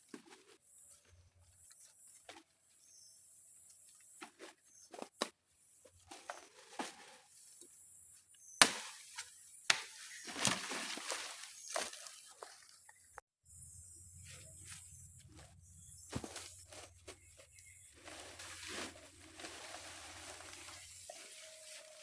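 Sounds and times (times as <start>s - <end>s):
rustling leaves and branches: 5.8s - 22.0s
sharp wood chops: 8.6s - 9.0s.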